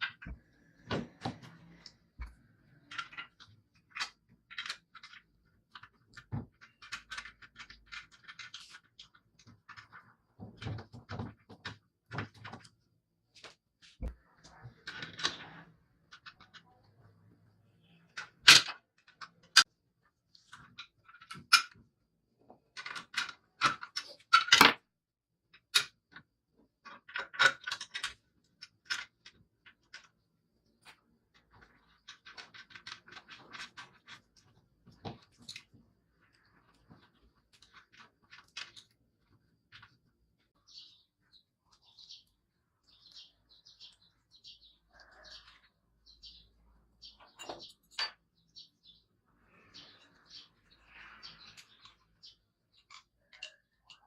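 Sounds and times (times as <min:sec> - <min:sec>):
hard parts clicking and knocking: 0:00.0 - 0:12.8, 0:20.3 - 0:24.9, 0:25.6 - 0:41.0.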